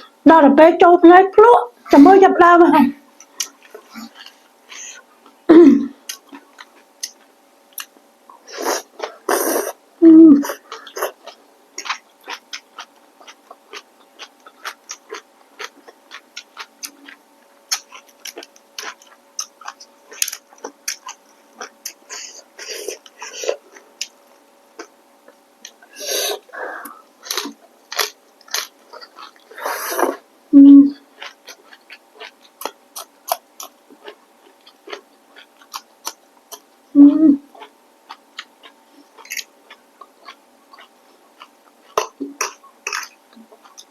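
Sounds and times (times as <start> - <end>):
close-miked chewing noodles: 6.0 - 9.8, 10.4 - 30.3, 31.0 - 36.8, 37.4 - 43.9.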